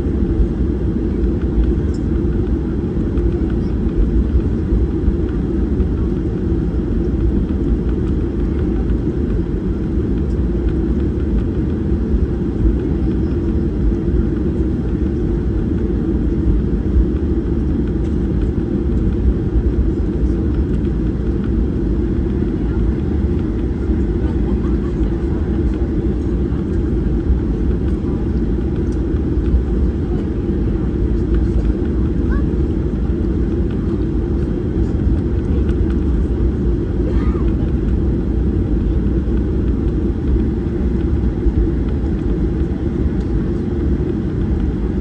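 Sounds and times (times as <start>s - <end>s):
cabin airflow: 0.0s - 45.0s
jet engines rumbling in cabin: 0.0s - 45.0s.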